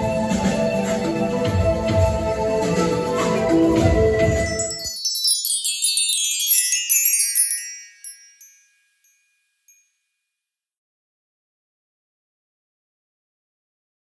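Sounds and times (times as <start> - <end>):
music: 0.0 - 8.6
cascade of high chimes: 4.3 - 9.9.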